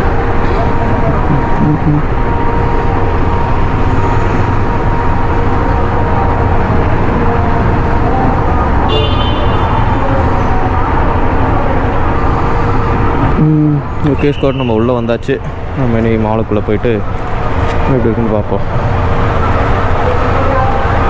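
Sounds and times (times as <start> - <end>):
vehicle horn toot: 8.8 - 10.1.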